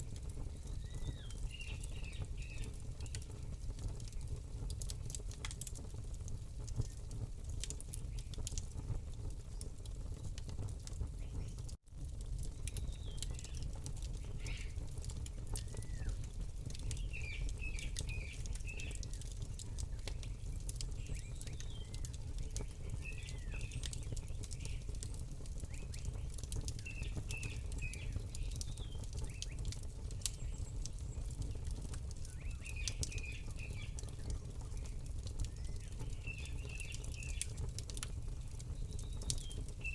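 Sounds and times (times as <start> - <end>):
small birds chirping: 0.0 - 5.2, 12.5 - 39.9
campfire crackling and popping: 0.0 - 39.9.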